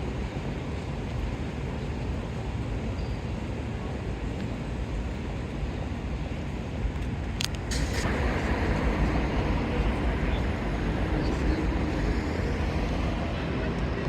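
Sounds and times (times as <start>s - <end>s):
passing vehicles rumble: 6.6s - 14.0s.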